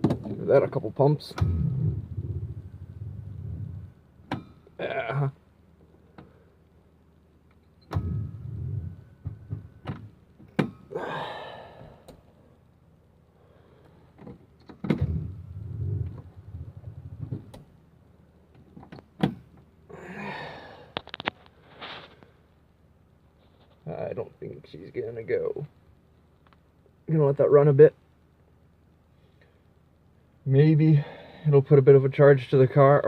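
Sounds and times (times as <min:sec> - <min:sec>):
engine starter cranking: 0:01.2 - 0:04.6.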